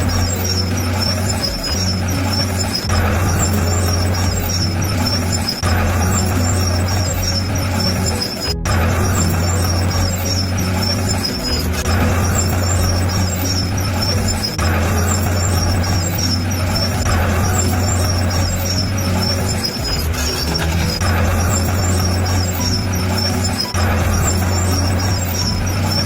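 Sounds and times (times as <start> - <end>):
bulldozer diesel engine droning: 0.0 - 26.0.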